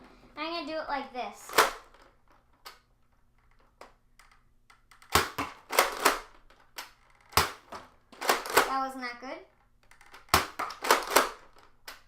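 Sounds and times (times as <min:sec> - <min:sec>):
toy blaster firing cracks: 0:01.5 - 0:02.0, 0:04.9 - 0:08.8, 0:10.1 - 0:11.6.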